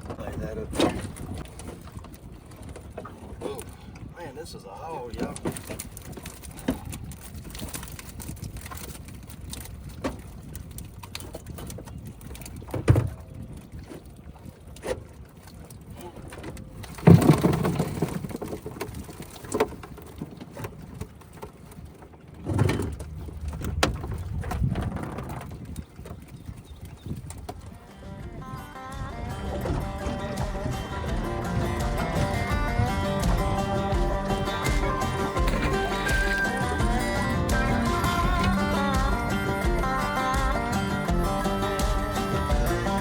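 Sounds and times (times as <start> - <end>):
knocks in a boat: 0.0 - 4.1, 5.1 - 8.2, 9.8 - 15.2, 15.9 - 43.0
water splashes: 0.0 - 43.0.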